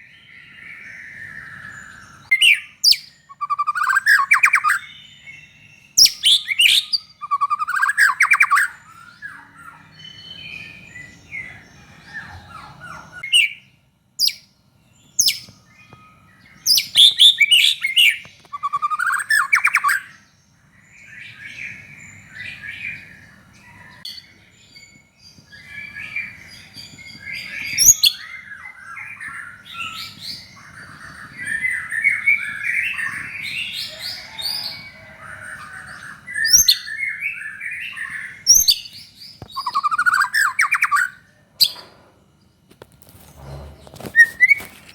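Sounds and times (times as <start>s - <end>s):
songbird whistling and chattering: 0.7s - 5.2s, 5.9s - 11.6s, 16.6s - 20.1s, 25.5s - 41.8s.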